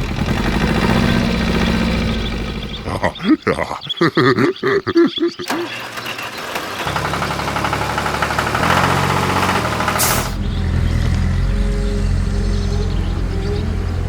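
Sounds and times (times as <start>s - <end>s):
engine low hum: 0.0s - 3.2s, 5.5s - 14.0s
loud hiss: 8.8s - 10.4s.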